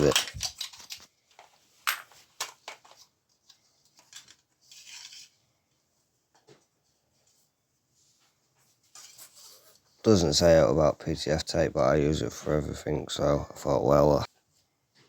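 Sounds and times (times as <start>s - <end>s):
plastic parts clicking: 0.0s - 1.5s, 3.8s - 5.3s.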